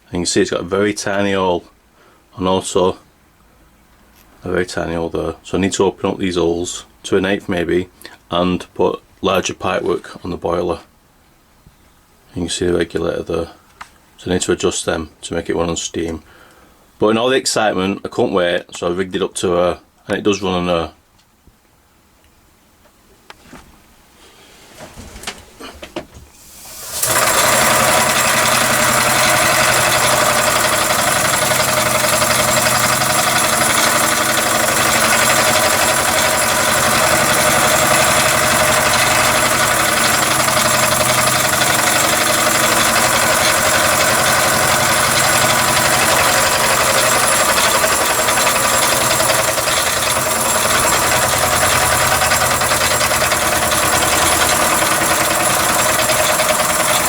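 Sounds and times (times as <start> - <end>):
model engine running on air: 26.6 - 57.0.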